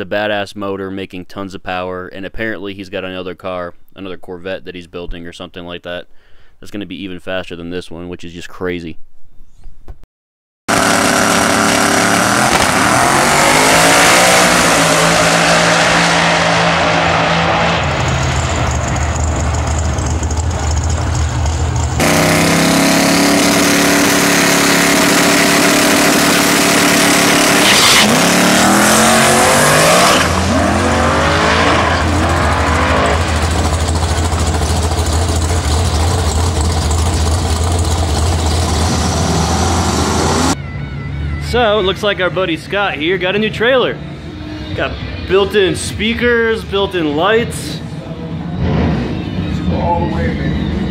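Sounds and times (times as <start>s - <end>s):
racing car engine revving: 10.7s - 40.6s, 48.3s - 50.9s.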